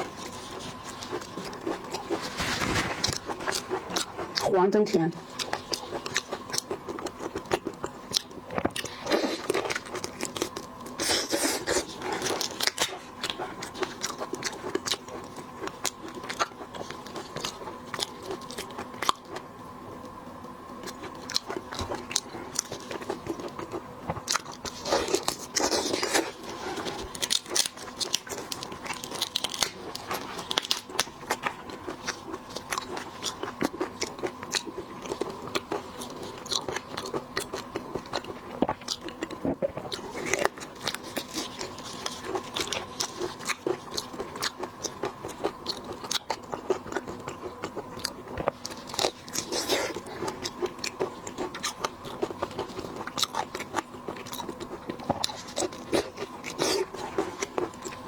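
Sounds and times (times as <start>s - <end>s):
faint steady hum: 0.0s - 58.0s
chewing with wet clicks: 3.1s - 4.6s, 5.2s - 58.0s
shells crunching and cracking: 21.0s - 58.0s.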